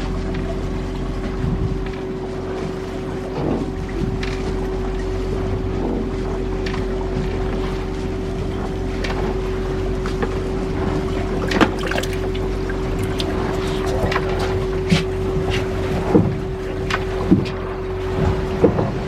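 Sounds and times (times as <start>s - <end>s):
boat engine humming: 0.0s - 19.0s
wind buffeting microphone: 1.2s - 2.1s, 3.1s - 19.0s.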